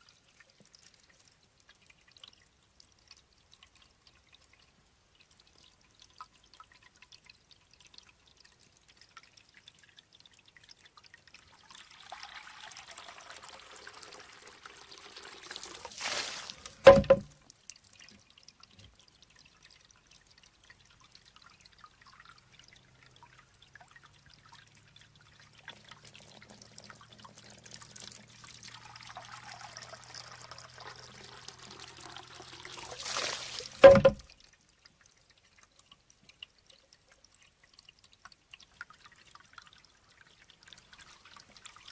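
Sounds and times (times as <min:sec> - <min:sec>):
water trickling into bamboo tube: 0:00.0 - 0:41.9
bamboo tube knocking on stone: 0:16.8 - 0:17.3, 0:33.8 - 0:34.3.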